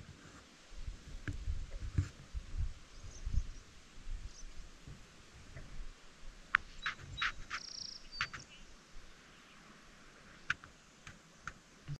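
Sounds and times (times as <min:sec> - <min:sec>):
buzzy bird trill: 0:06.8 - 0:08.6.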